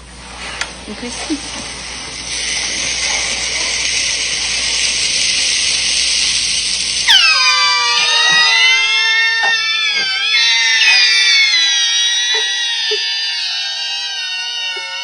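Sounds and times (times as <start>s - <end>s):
steam hissing from pan: 0.4s - 13.1s
high wailing squeal: 7.0s - 15.0s.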